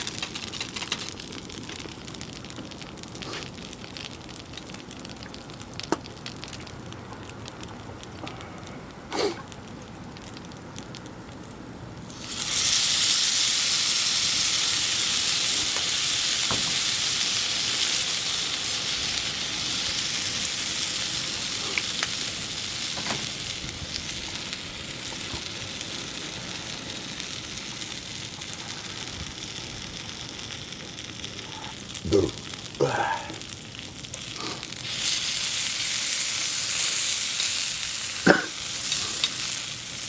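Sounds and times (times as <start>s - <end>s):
small pops: 4.6s - 6.6s
dumplings sizzling in a pan: 12.0s - 40.0s.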